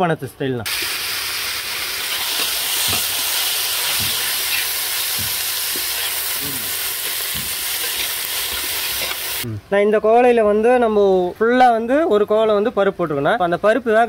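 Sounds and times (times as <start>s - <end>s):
ladle stroking wok: 0.7s - 9.5s
lentils sizzling in hot oil: 0.7s - 9.5s.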